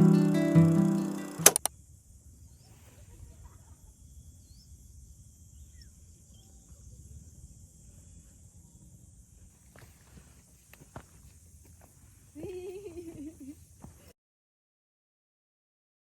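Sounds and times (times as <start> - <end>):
insects buzzing: 0.0 - 14.1
faint bird chirps: 2.3 - 8.9.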